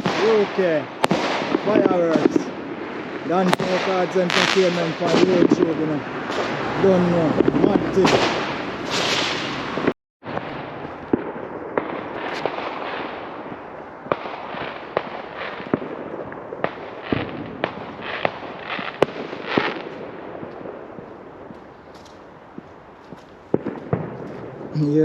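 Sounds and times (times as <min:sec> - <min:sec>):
fireworks bangs: 0:00.0 - 0:25.0
fireworks crackling and rumbling: 0:00.0 - 0:25.0.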